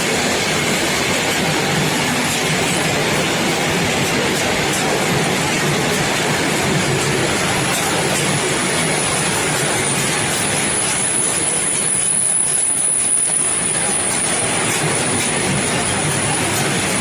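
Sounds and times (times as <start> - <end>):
freight train wagons on rails: 0.0 - 17.0
high-pitched wheel squeal: 8.8 - 15.2.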